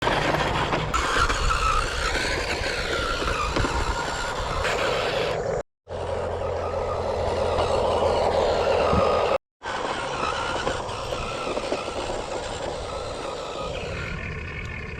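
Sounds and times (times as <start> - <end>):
small electric motors whining: 0.0 - 14.9.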